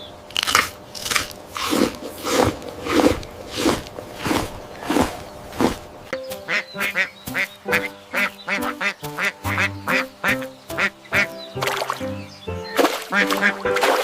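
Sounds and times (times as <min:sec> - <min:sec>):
background music: 0:06.1 - 0:14.0
duck quacking: 0:06.4 - 0:11.5, 0:12.1 - 0:14.0.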